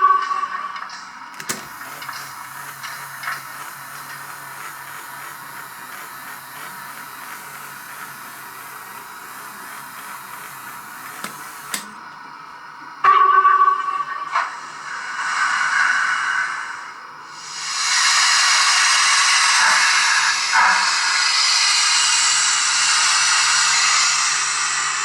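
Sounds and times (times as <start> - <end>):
soft clicks: 1.3 - 12.0
steam hiss: 1.3 - 12.1, 14.5 - 25.0.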